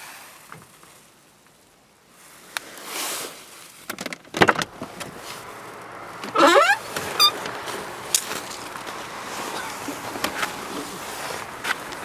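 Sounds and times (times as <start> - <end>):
car door latch clicks: 3.9 - 5.2
short rustle: 4.7 - 12.0.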